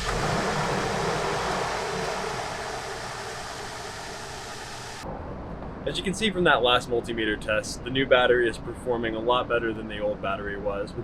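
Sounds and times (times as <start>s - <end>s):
engine running rumble: 0.0s - 5.7s.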